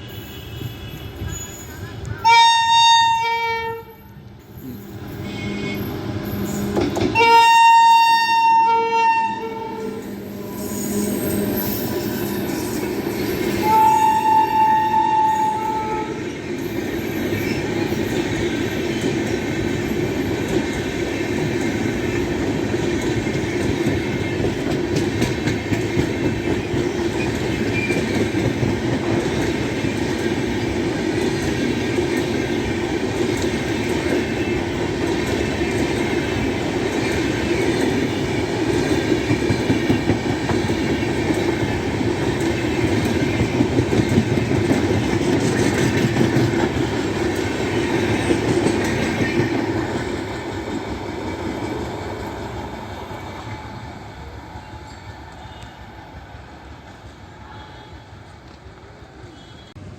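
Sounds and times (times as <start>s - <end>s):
locomotive horn: 2.2s - 4.2s, 5.2s - 11.4s, 13.6s - 16.2s, 57.3s - 58.3s, 59.3s - 59.8s
train wheels rumbling and clattering: 4.4s - 7.8s, 9.4s - 57.1s.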